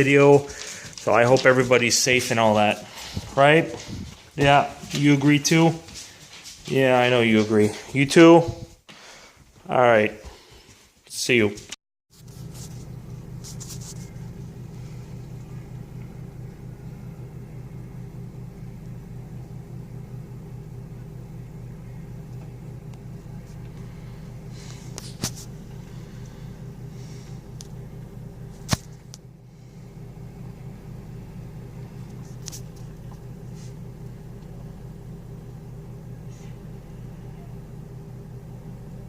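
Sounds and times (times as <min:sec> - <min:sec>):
vehicle engine running: 0:12.1 - 0:39.0.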